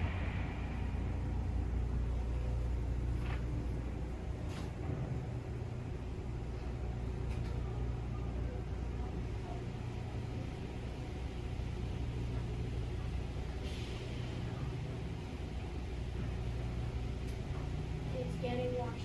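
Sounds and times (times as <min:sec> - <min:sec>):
car wash machinery rumble: 0:00.0 - 0:19.0
hiss of spray: 0:13.6 - 0:14.5.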